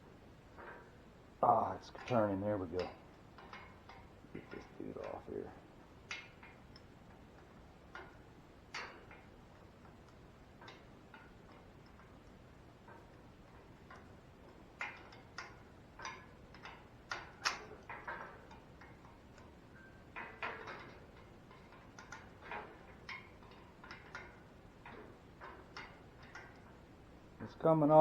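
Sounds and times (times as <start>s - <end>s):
wrench clicking on metal bolt: 14.8s - 19.5s.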